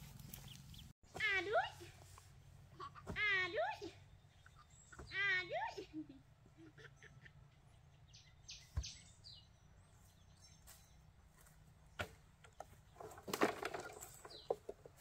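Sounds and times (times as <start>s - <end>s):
clattering and rustling: 12.5s - 15.0s.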